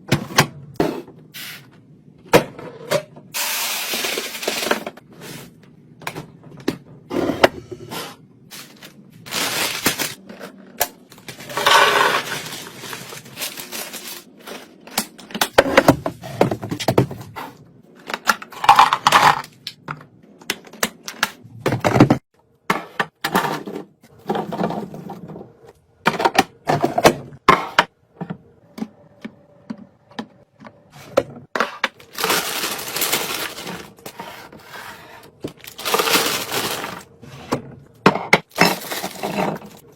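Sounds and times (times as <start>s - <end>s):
plastic packaging crinkling: 8.5s - 10.3s, 11.1s - 15.0s, 31.9s - 34.1s, 35.5s - 37.1s.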